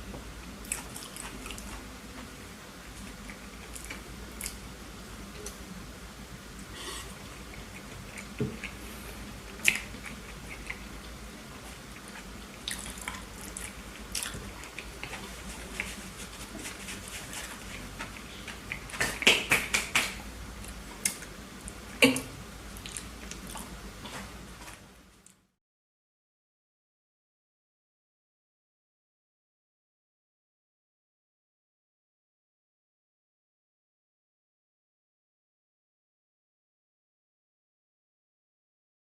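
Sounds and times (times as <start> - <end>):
person chewing food: 0.6 - 4.6, 6.6 - 19.5, 20.6 - 21.8, 22.7 - 25.4.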